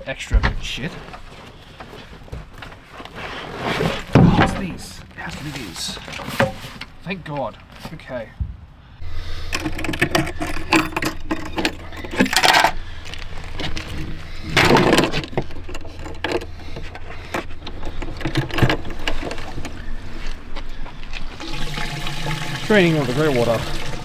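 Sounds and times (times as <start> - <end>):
steady low hum: 8.5 - 24.0
metallic clinking and rattling: 9.0 - 22.8
water rushing bursts: 21.3 - 24.0.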